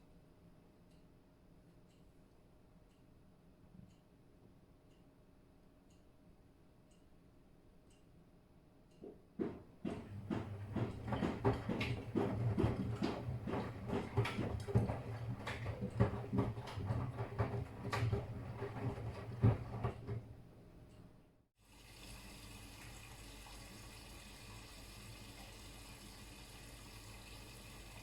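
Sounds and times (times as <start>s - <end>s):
motor hum: 9.4s - 20.5s
washing machine drum sloshing: 9.4s - 20.8s.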